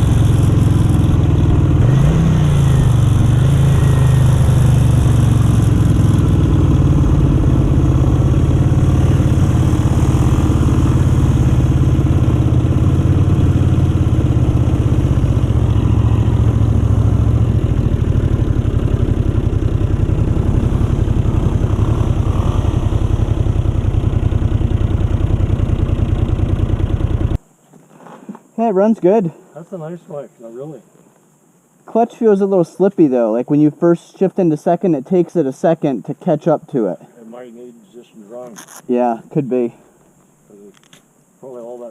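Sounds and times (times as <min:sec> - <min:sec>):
motorcycle engine idling: 0:00.0 - 0:27.4.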